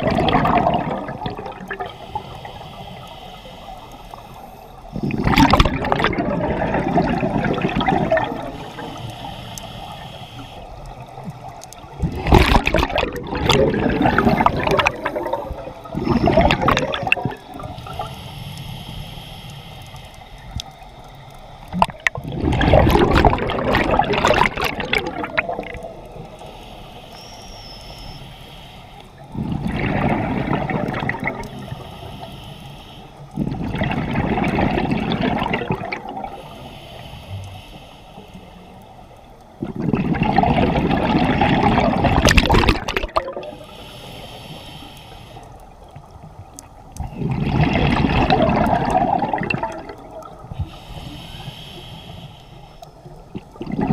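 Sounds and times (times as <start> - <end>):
exhaled bubbles gurgling: 0.0 - 18.9, 19.8 - 27.2, 29.2 - 32.3, 33.3 - 36.7, 39.5 - 44.9, 45.5 - 52.2, 52.9 - 53.9
regulator inhale hiss: 1.8 - 5.1, 8.2 - 11.9, 17.4 - 21.7, 25.9 - 29.4, 31.3 - 33.5, 36.2 - 39.4, 43.4 - 46.0, 50.2 - 53.3.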